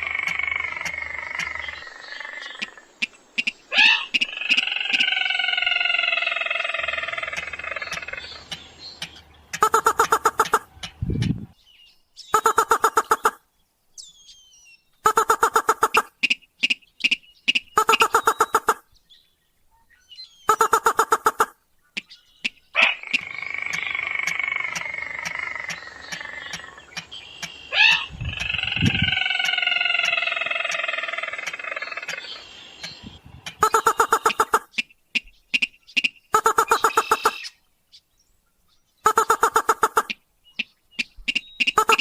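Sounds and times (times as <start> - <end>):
rail bird rapid repeated notes: 7.9 - 11.4, 12.4 - 13.4, 15.0 - 18.8, 20.5 - 21.5, 33.5 - 37.5, 39.1 - 40.2, 41.0 - 42.0.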